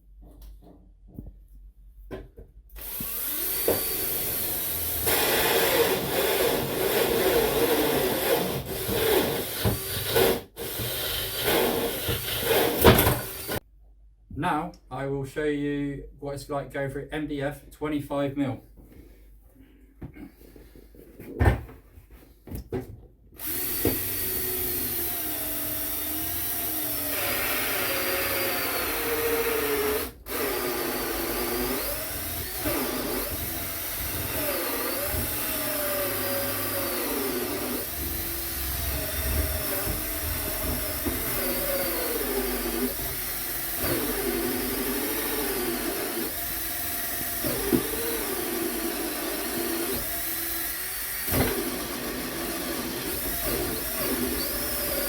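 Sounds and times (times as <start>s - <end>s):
power drill cutting with hole saw: 2.8s - 13.6s, 23.4s - 55.0s.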